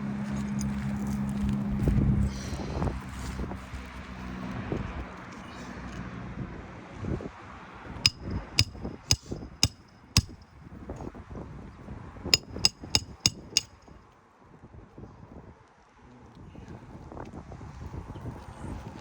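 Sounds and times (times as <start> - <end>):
hammer striking roofing nails: 8.1 - 10.4, 12.4 - 13.8.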